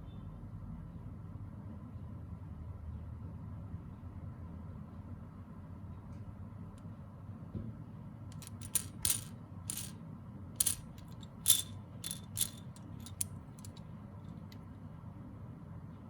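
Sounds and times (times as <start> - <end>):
small pieces clicking and tapping: 8.4 - 9.9, 10.6 - 13.8.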